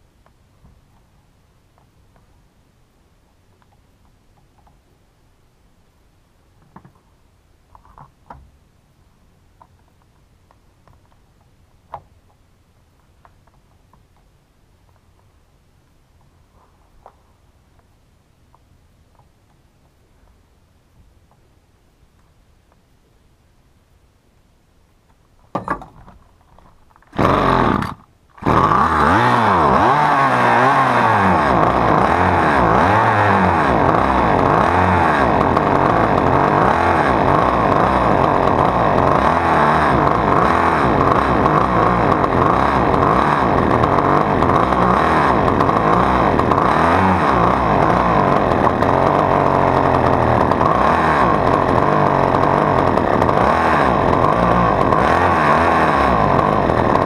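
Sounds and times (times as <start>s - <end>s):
chainsaw engine starting: 27.0s - 57.0s.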